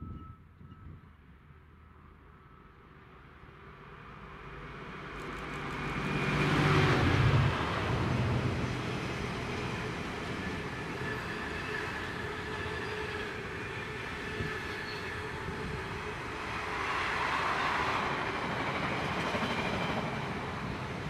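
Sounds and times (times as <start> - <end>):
freight train rolling past: 0.1 - 21.0.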